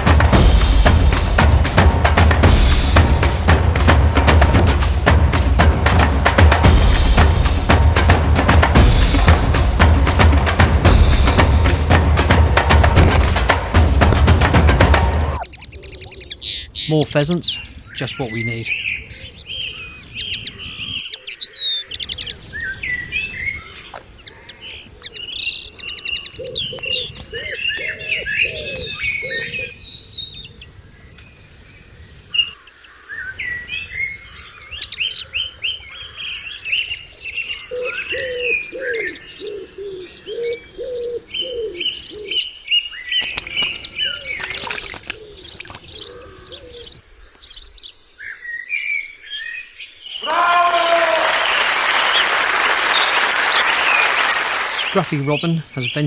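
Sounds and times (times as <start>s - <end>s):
lower bird call: 0.0s - 30.8s, 32.4s - 49.2s, 50.1s - 56.0s
birds chirping: 0.0s - 56.0s.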